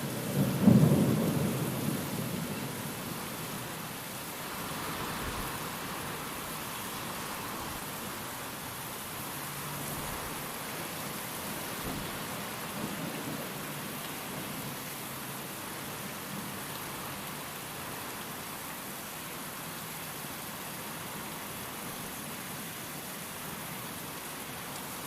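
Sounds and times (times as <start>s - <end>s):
steady rain: 0.0s - 25.0s
wind: 0.0s - 25.0s
low rumble of thunder: 0.1s - 3.6s.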